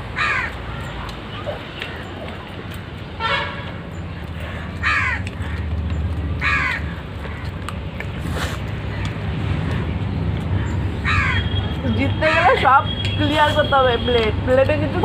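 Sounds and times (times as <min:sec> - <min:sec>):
crow cawing: 0:00.2 - 0:00.9, 0:04.5 - 0:05.7, 0:06.4 - 0:07.6, 0:10.6 - 0:11.6.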